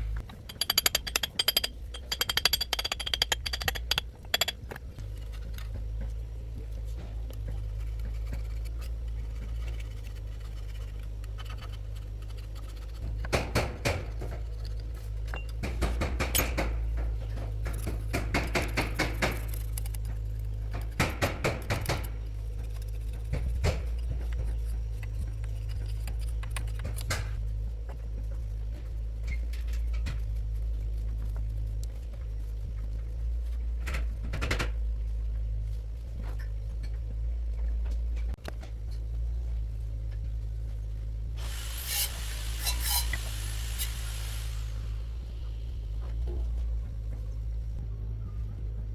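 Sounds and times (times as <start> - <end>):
steady low hum: 0.0 - 48.9
metal tools clinking: 0.2 - 5.5.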